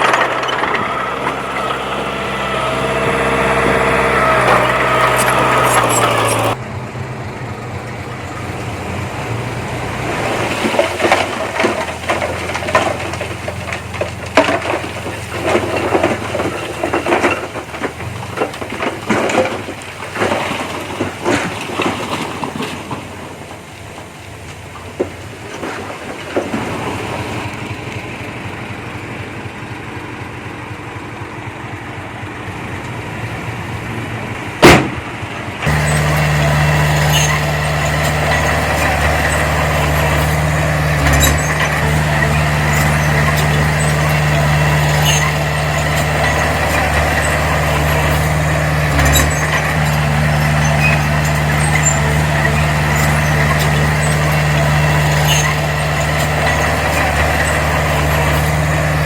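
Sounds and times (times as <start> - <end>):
diesel engine running: 0.0 - 59.0
high clicks and squeaks: 5.0 - 6.6, 35.7 - 40.4, 41.0 - 58.5.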